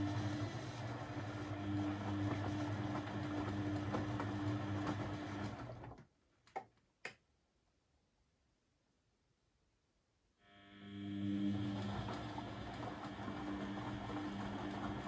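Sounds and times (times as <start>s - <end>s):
washing machine humming: 0.0s - 6.0s, 10.7s - 15.0s.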